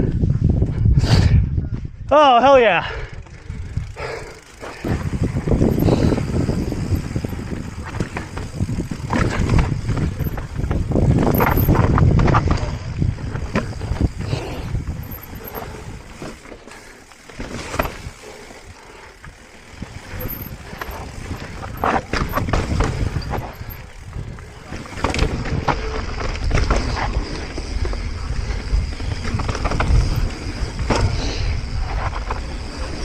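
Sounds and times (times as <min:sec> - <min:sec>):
wind rumbling on microphone: 0:00.0 - 0:02.2, 0:02.9 - 0:33.0
bike tyres rolling over dirt and rocks: 0:03.1 - 0:33.0
chain and frame rattling: 0:03.5 - 0:11.9, 0:13.4 - 0:16.2, 0:20.0 - 0:24.0.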